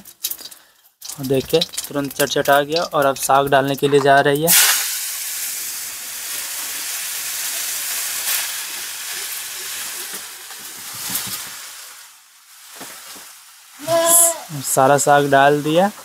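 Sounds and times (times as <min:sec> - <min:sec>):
greens sizzling in hot oil: 0:00.0 - 0:16.0.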